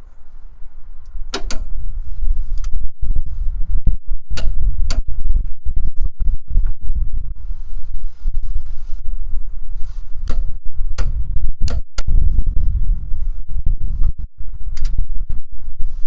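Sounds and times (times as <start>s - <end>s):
heavy low rumble: 0.0s - 16.0s.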